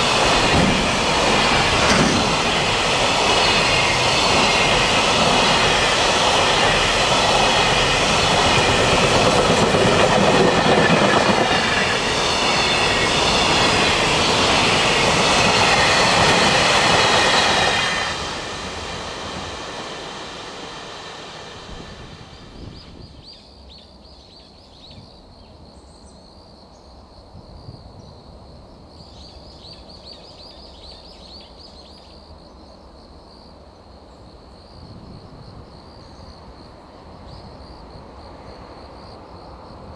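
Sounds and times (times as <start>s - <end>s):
freight train wagons rolling past: 0.0s - 24.3s
insects chirping: 0.0s - 39.9s.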